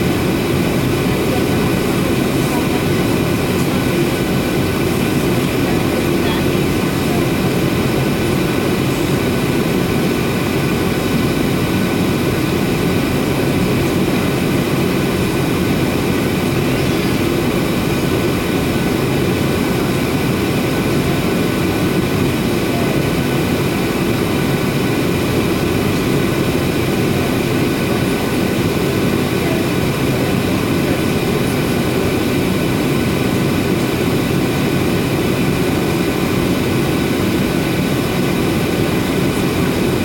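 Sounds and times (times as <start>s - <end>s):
jet engines running: 0.0s - 40.0s
high-pitched whining tones: 16.2s - 18.1s.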